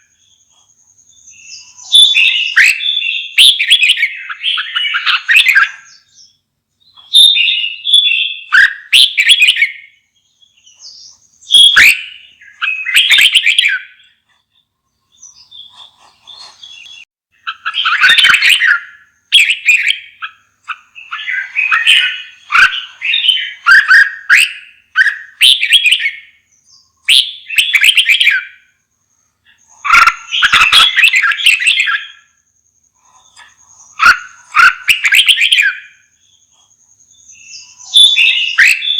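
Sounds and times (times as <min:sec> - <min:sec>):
bird singing warbled phrases: 0:00.0 - 0:38.9
soft bird calls: 0:00.0 - 0:38.9.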